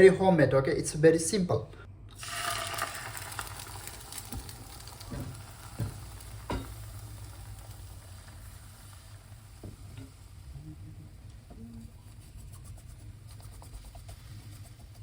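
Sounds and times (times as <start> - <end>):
egg sizzling in frying pan: 2.1 - 11.3.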